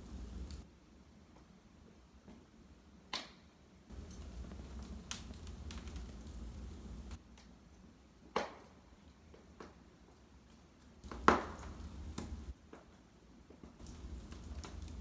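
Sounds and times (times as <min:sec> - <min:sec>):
fire crackling and popping: 0:00.0 - 0:00.6, 0:03.9 - 0:07.2, 0:11.0 - 0:12.6, 0:13.8 - 0:15.0
fire flames rumbling: 0:00.0 - 0:00.6, 0:03.9 - 0:07.2, 0:11.0 - 0:12.5, 0:13.8 - 0:15.0.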